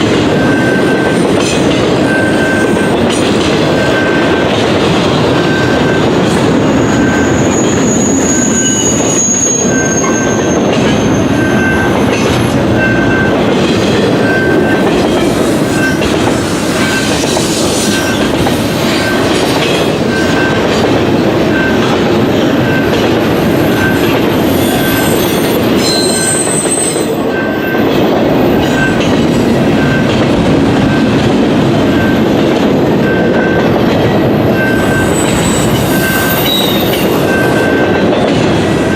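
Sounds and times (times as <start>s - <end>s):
freight train rumbling past: 0.0s - 38.9s
faint high wheel squeals: 6.7s - 12.2s, 23.7s - 27.6s, 34.6s - 37.9s.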